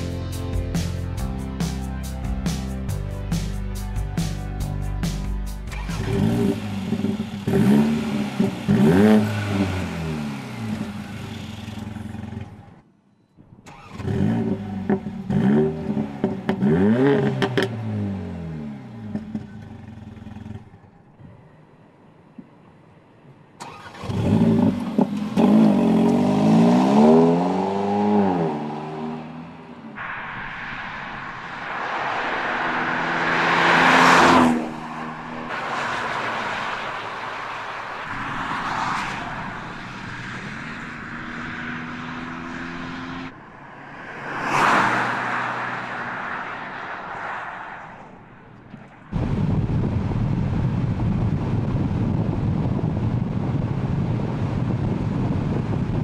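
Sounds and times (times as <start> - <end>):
car accelerating: 5.6 - 12.8, 13.6 - 21.0, 23.6 - 49.6
car engine revving: 5.6 - 12.8, 13.6 - 20.9, 23.6 - 49.4.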